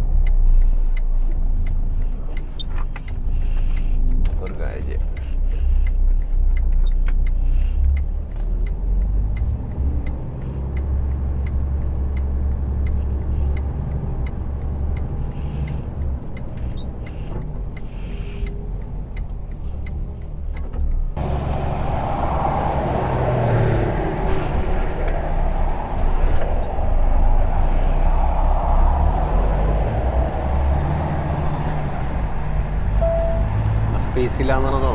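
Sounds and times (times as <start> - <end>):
light regular ticking: 0.0 - 21.2
diesel truck engine: 0.0 - 34.9
rushing noise: 21.2 - 34.5.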